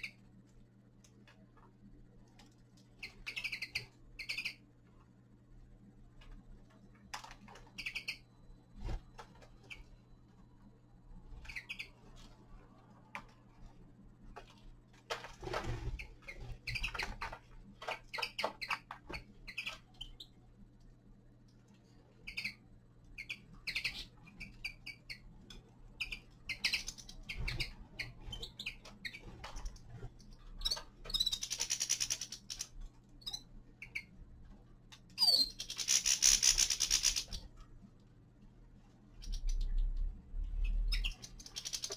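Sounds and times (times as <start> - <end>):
finches chirping: 3.0 - 4.6, 7.6 - 10.0, 11.3 - 12.0, 15.7 - 20.4, 22.2 - 25.3, 25.9 - 34.2, 35.2 - 37.5, 39.2 - 39.9, 40.6 - 41.9.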